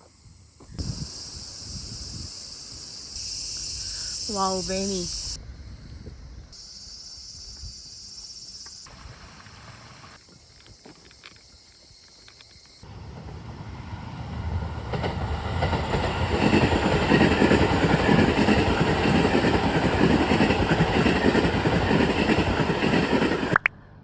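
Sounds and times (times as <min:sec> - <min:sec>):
train passing: 0:00.8 - 0:05.4, 0:12.8 - 0:24.0.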